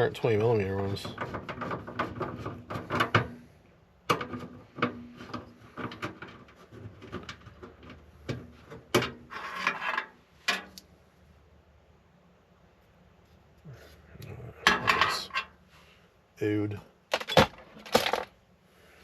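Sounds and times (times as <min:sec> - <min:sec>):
hardware parts clicking and knocking: 0:17.1 - 0:18.4.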